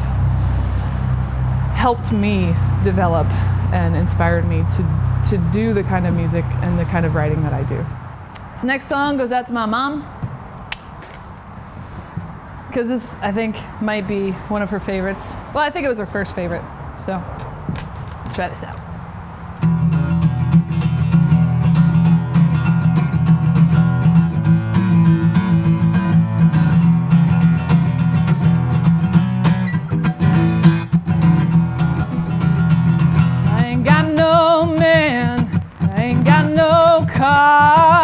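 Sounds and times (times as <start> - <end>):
acoustic guitar playing: 0.0 - 8.3, 18.9 - 38.0
woman singing: 33.4 - 38.0.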